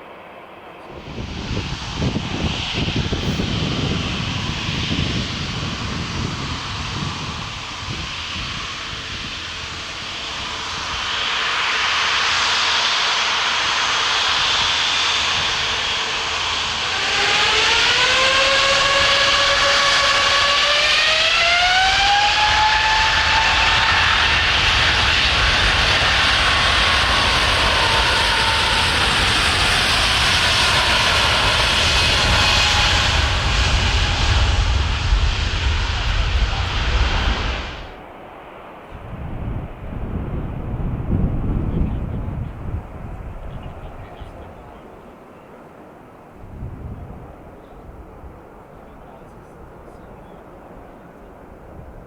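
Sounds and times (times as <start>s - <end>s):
low rumble: 0.0s - 38.1s
rising engine whine: 0.0s - 44.9s
jet engines running: 0.0s - 52.0s.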